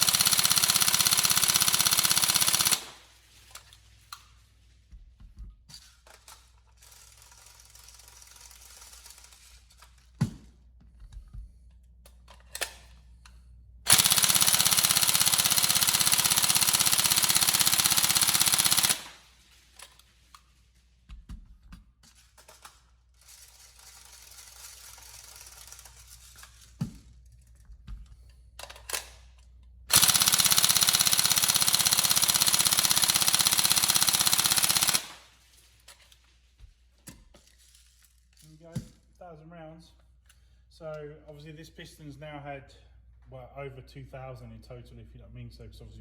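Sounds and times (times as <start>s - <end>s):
airsoft gun full-auto bursts: 0.0s - 3.3s, 6.8s - 9.7s, 13.9s - 19.9s, 23.2s - 26.1s, 29.9s - 35.6s.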